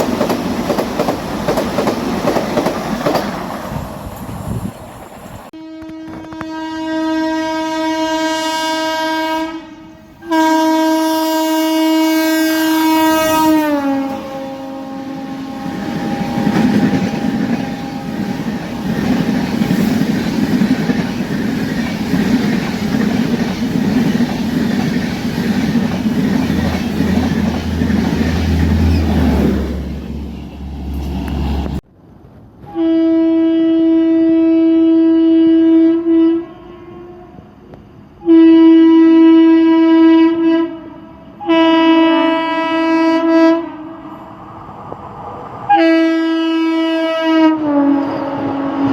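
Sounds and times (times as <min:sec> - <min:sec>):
train wheel and rail noise: 0:00.0 - 0:48.9
train horn blasts: 0:05.5 - 0:18.4, 0:32.6 - 0:44.2, 0:45.7 - 0:48.9.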